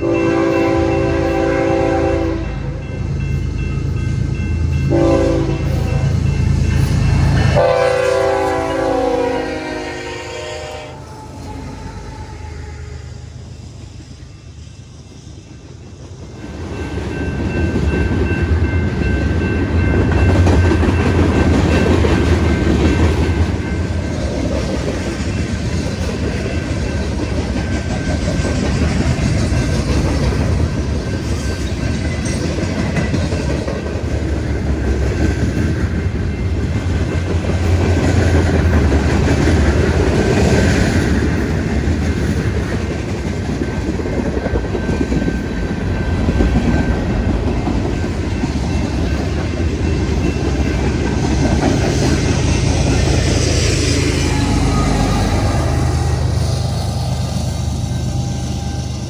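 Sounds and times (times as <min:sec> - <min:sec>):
train wheels rumbling and clicking: 0:13.6 - 0:59.0.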